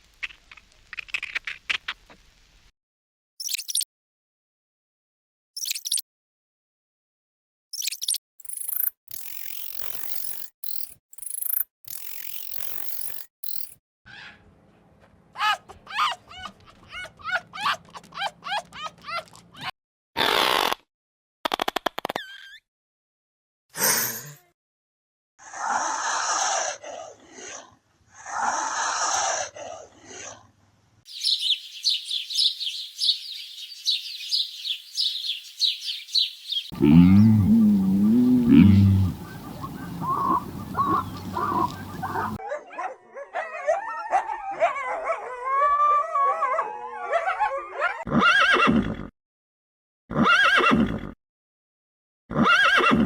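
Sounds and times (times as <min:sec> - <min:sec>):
high-pitched chirps: 0:07.8 - 0:13.8
harsh breathy animal calls: 0:25.4 - 0:30.4, 0:36.7 - 0:42.4
high yelping animal calls: 0:31.2 - 0:42.4.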